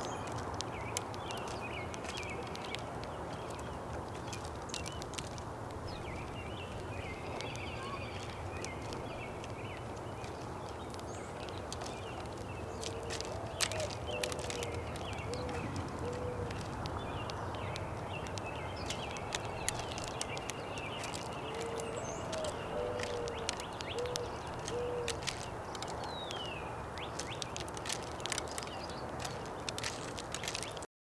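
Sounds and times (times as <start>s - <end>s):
sharp clicks: 0.0s - 30.9s
faint high bird chirps: 6.0s - 10.2s
dove cooing: 12.9s - 16.7s, 21.0s - 25.4s.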